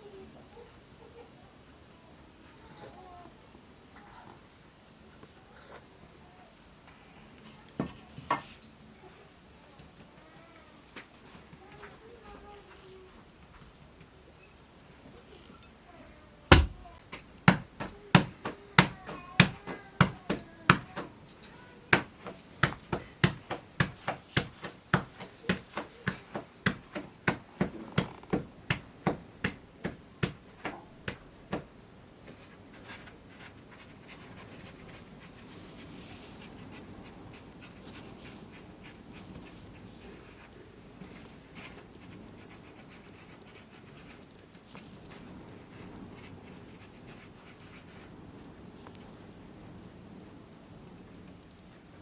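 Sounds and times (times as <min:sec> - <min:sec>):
sharp knocks: 0:16.5 - 0:21.2.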